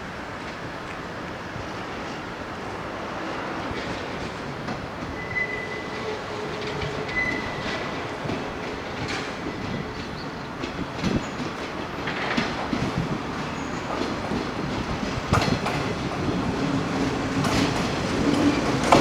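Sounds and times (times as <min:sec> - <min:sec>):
train rumble: 0:00.0 - 0:19.0
train wheels clacking over rail joints: 0:02.0 - 0:19.0
faint high squeal: 0:05.1 - 0:08.0.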